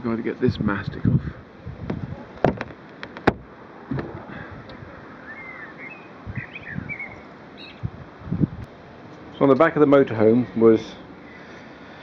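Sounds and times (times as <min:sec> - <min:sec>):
sharp clicks and knocks: 0:02.4 - 0:04.8
small birds chirping: 0:04.3 - 0:08.0, 0:10.5 - 0:12.0.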